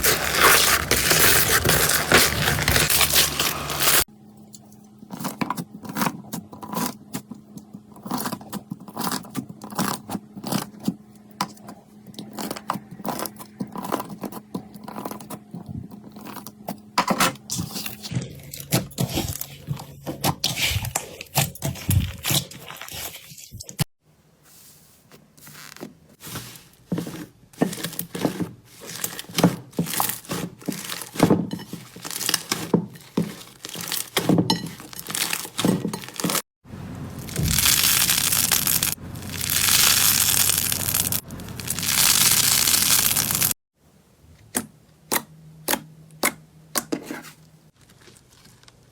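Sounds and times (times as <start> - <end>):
slime popping and crackling: 37.2 - 43.6.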